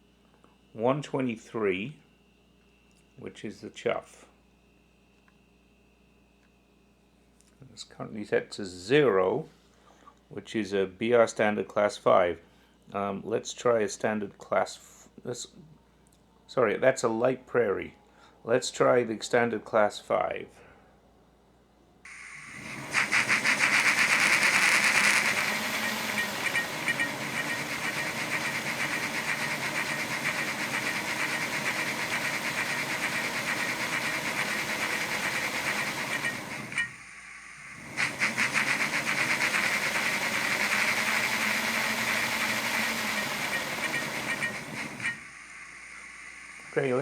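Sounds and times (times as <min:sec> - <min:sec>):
steam locomotive chuffing: 0:22.1 - 0:37.0, 0:37.6 - 0:47.0
steam hiss: 0:22.1 - 0:47.0.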